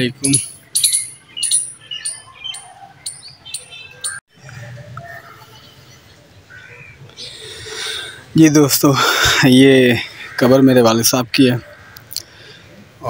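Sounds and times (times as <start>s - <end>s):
birds chirping: 0.0s - 8.3s
faint outdoor background: 0.0s - 13.0s.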